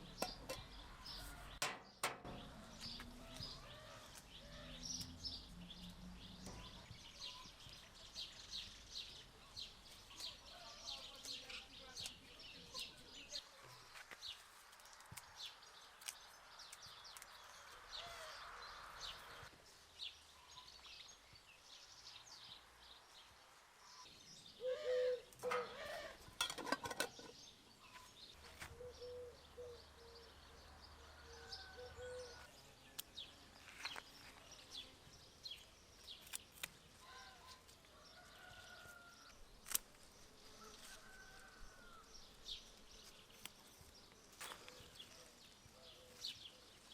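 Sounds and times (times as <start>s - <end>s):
birds chirping: 0.0s - 14.5s, 23.8s - 46.9s.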